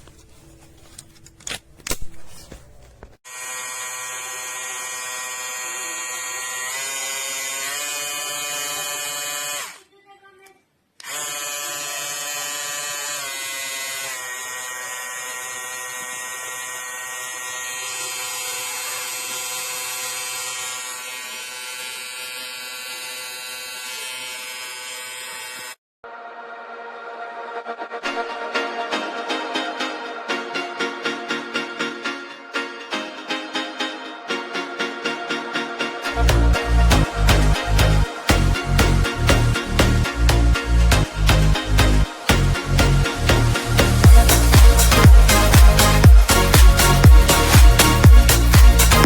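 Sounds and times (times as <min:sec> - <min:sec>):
electric shaver buzzing: 0:03.2 - 0:09.9, 0:11.0 - 0:25.8, 0:41.4 - 0:49.0.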